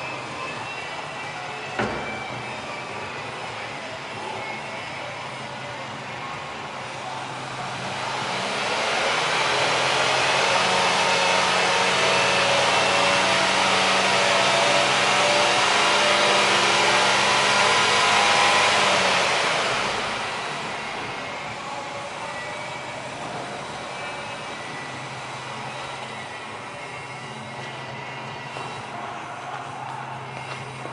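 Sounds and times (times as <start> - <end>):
car engine revving: 6.6 - 28.9.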